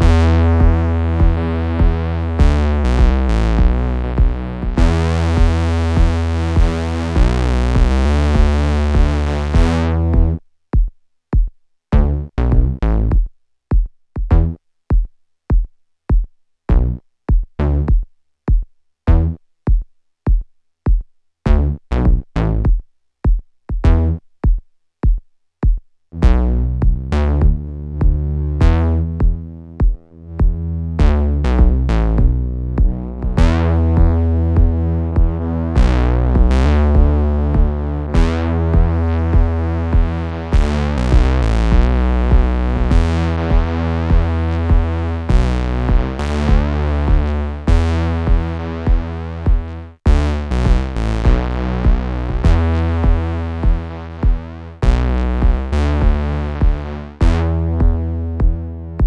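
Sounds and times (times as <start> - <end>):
gritty buzzy synthesizer sequence: 0.0 - 10.4, 26.2 - 59.0.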